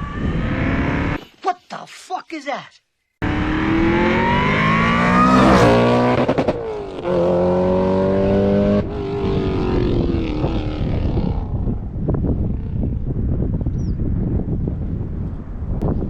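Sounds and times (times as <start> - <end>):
car engine revving: 0.1 - 1.2, 3.2 - 11.2.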